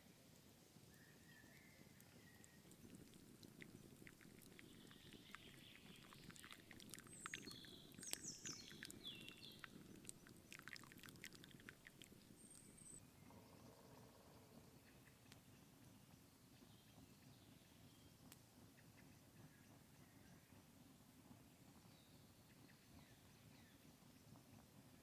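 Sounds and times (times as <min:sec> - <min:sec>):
small birds chirping: 0:00.0 - 0:20.8
light clicks and crackles: 0:00.3 - 0:13.0.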